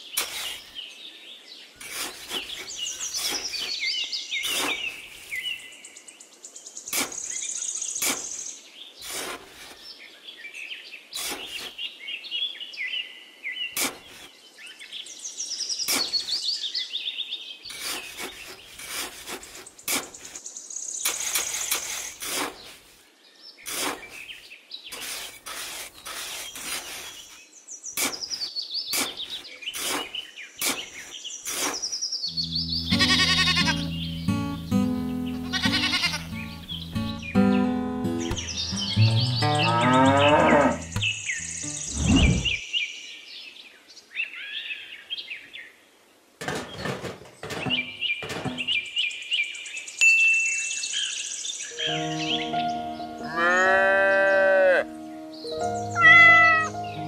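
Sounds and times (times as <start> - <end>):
trowel scraping damp sand: 0.0 - 0.7, 1.8 - 5.6, 6.9 - 8.4, 9.0 - 10.0, 11.2 - 11.8, 13.8 - 14.4, 15.8 - 16.4, 17.7 - 20.4, 21.0 - 23.0, 23.6 - 32.0, 40.2 - 42.6
birds chirping: 0.0 - 21.8, 26.4 - 43.0, 46.4 - 57.0.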